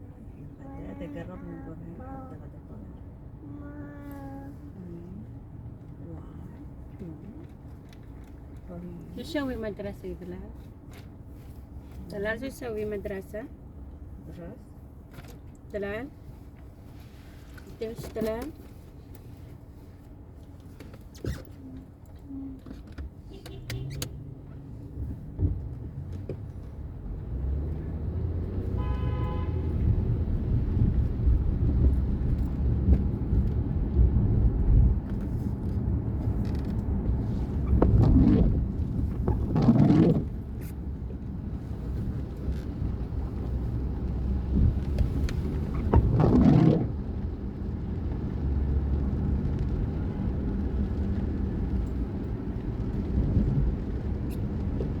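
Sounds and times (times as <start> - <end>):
engine and tyre rumble: 0.0 - 55.0
vehicles passing whoosh: 23.8 - 55.0
horn toot: 28.7 - 29.7.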